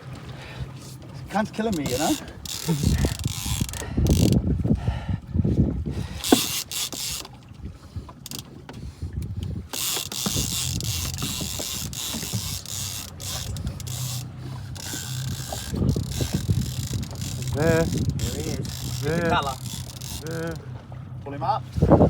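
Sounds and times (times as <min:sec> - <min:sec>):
fishing reel ratchet ticking: 0:01.7 - 0:04.4, 0:06.2 - 0:07.3, 0:08.2 - 0:08.4, 0:09.7 - 0:20.6.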